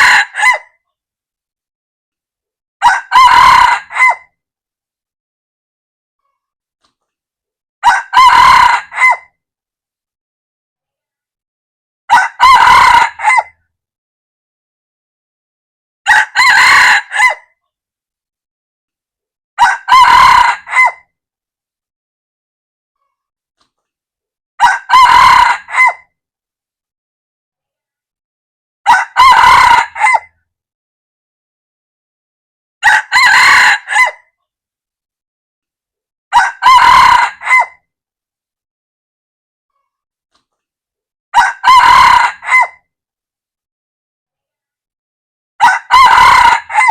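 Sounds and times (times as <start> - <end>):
rooster crowing: 0.0 - 0.6, 2.8 - 4.2, 7.8 - 9.3, 12.1 - 13.5, 16.1 - 17.4, 19.6 - 21.0, 24.6 - 26.0, 28.9 - 30.3, 32.8 - 34.2, 36.3 - 37.8, 41.4 - 42.8, 45.6 - 46.9.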